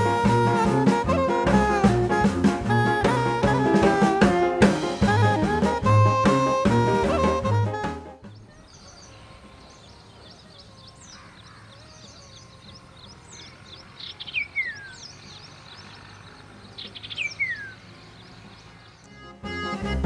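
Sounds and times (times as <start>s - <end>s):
bird call with falling whistle: 0.0s - 15.5s.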